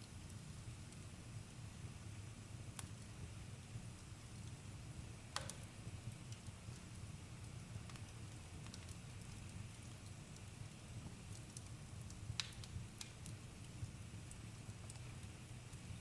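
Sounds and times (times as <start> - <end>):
campfire crackling and popping: 5.3 - 16.0.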